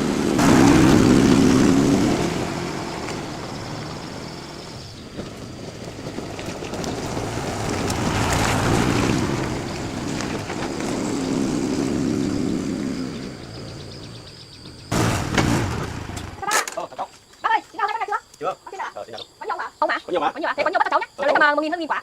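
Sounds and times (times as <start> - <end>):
motor vehicle engine running: 0.0 - 16.4.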